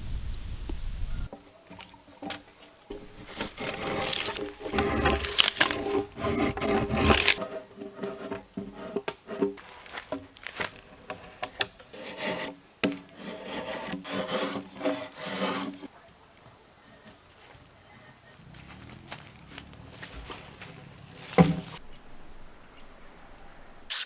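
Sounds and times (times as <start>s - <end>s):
hand tool rasping wood: 2.9s - 15.9s, 18.4s - 24.0s.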